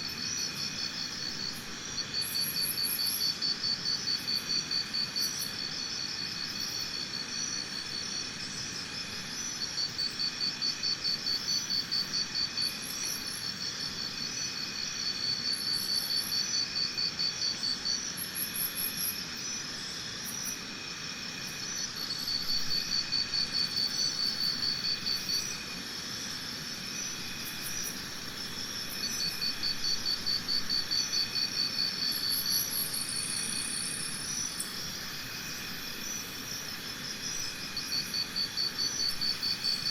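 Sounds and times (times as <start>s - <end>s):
faint steady insect chirping: 0.0s - 39.9s
insect pulsed trill: 0.0s - 39.9s.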